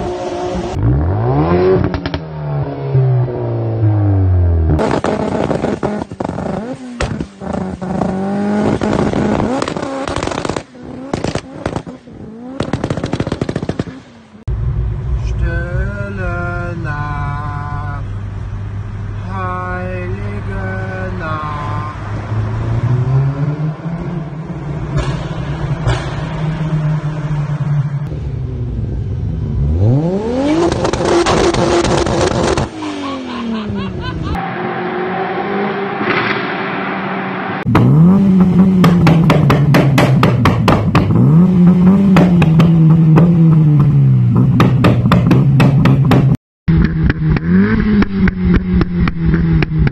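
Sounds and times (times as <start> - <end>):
car engines revving: 0.0 - 49.9
exhaust backfire pops: 1.7 - 2.3, 4.7 - 14.1, 24.8 - 27.1, 30.6 - 32.8, 36.0 - 36.8, 37.6 - 49.9.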